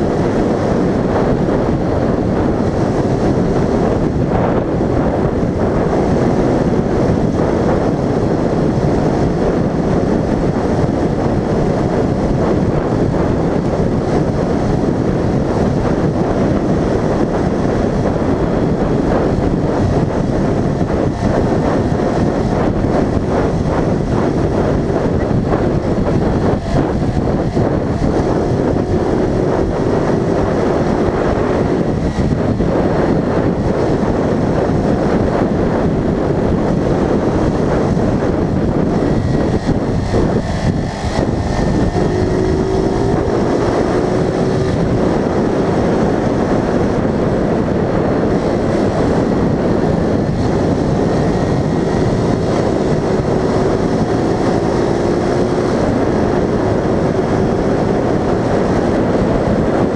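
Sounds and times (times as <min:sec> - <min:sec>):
engine accelerating: 0:00.0 - 0:59.9
wind and road noise: 0:00.0 - 0:59.9.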